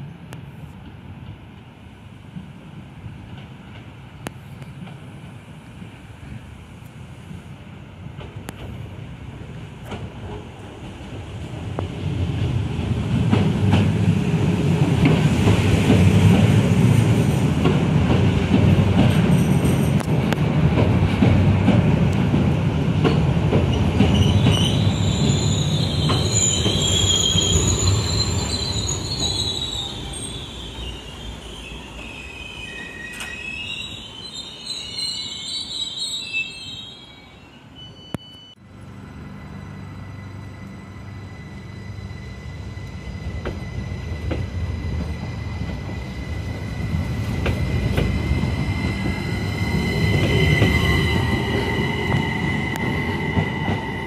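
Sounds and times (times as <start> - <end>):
train wheels rumbling: 7.2 - 36.1, 38.6 - 54.0
train brakes squealing: 23.8 - 54.0.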